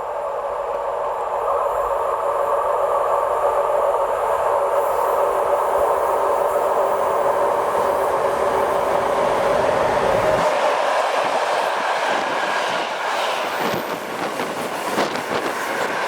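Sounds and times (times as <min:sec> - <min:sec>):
train wheels rolling on rails: 0:04.9 - 0:16.0.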